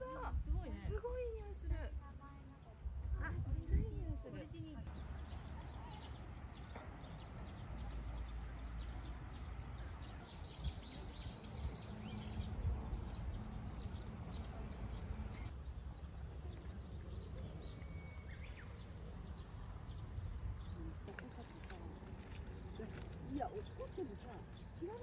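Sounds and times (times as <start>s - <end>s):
faint bird chirps: 13.8s - 19.4s.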